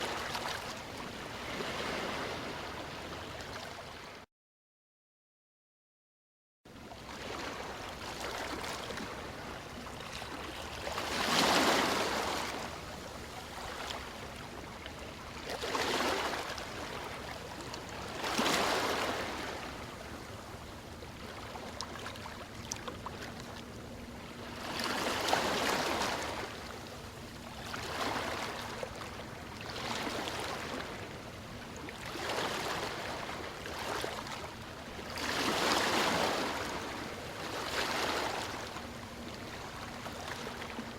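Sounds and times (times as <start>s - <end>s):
ocean waves washing in: 0.0s - 4.2s.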